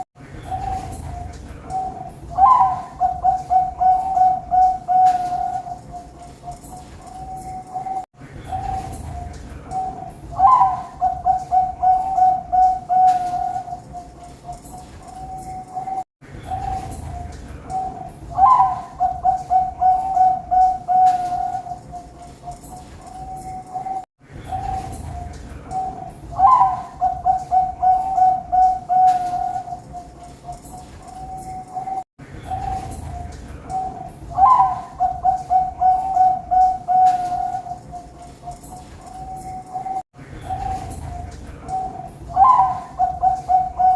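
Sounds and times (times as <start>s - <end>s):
doves cooing: 0.0s - 43.9s
dove loud call: 1.7s - 5.8s, 10.3s - 13.8s, 25.8s - 29.8s, 33.8s - 37.8s, 39.8s - 43.9s.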